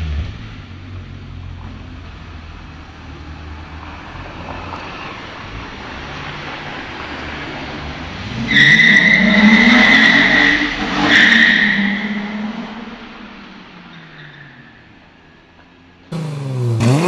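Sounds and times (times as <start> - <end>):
car engine revving: 16.1 - 17.0.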